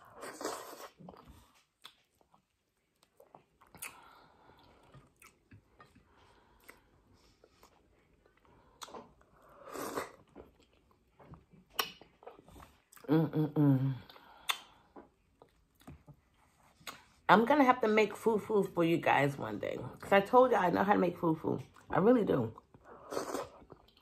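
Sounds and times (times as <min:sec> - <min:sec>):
close-up chewing: 0:00.0 - 0:13.1.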